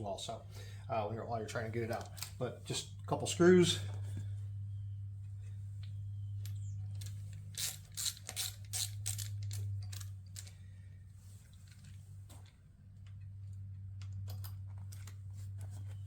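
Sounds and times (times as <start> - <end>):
low hum: 0.0 - 16.0
screwdriver metallic clicks and scrapes: 7.0 - 10.6.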